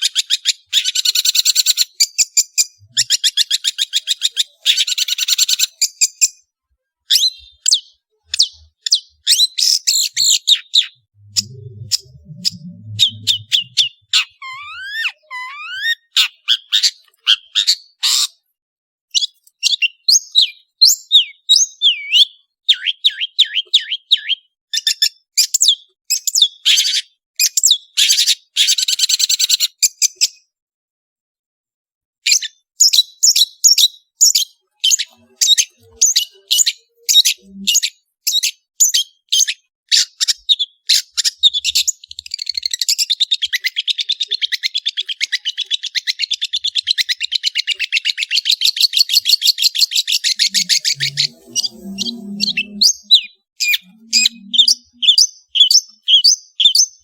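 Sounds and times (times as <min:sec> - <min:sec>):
bird singing chirps and whistles: 0:07.1 - 0:18.2, 0:19.2 - 0:25.0, 0:32.3 - 0:57.0.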